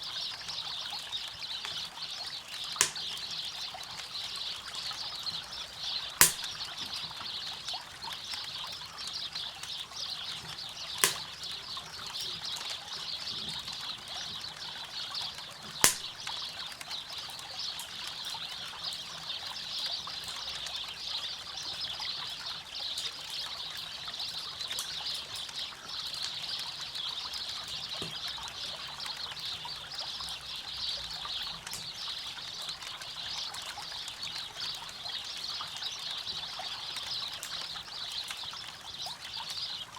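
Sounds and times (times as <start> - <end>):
campfire crackling: 2.7 - 3.4, 6.2 - 6.7, 11.0 - 11.7, 15.8 - 16.3
sharp pops from fire: 2.8 - 3.3, 6.2 - 6.9, 11.0 - 11.5, 15.8 - 16.4, 31.6 - 32.0.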